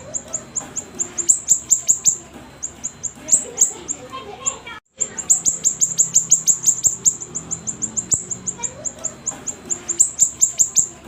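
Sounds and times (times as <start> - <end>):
bird singing high chip notes: 0.0 - 11.0.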